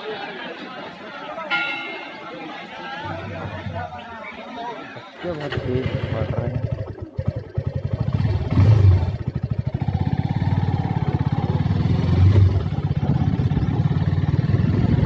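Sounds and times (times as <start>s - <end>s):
motorcycle engine at low revs: 5.2s - 15.0s.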